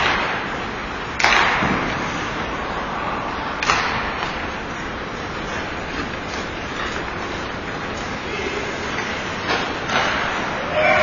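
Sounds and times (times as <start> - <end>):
hockey puck struck cracks: 1.2 - 1.9, 3.6 - 4.3.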